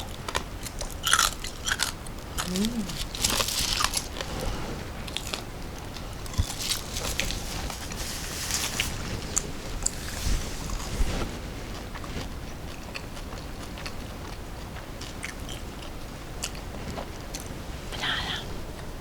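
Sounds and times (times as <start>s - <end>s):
crunchy food chewing: 0.0s - 18.0s.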